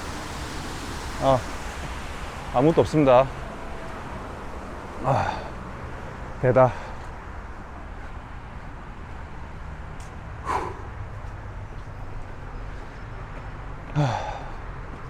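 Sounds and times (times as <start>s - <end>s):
loud exhales with sigh: 5.0s - 5.6s, 10.4s - 11.0s, 14.0s - 14.5s
man breathing heavily: 5.0s - 8.8s, 10.3s - 11.4s, 12.1s - 15.0s.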